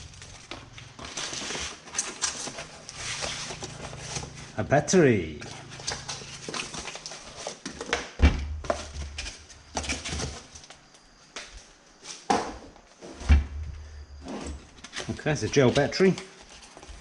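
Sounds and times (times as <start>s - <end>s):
packaging rustling: 0.0s - 4.6s, 5.4s - 8.0s.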